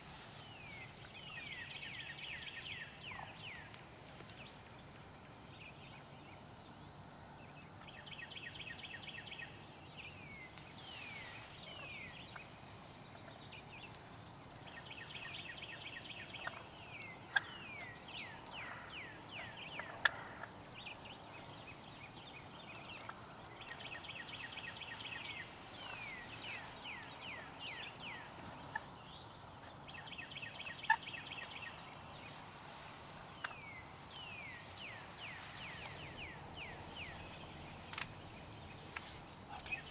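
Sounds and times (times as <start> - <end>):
songbirds singing: 0.5 - 4.6, 14.7 - 39.9.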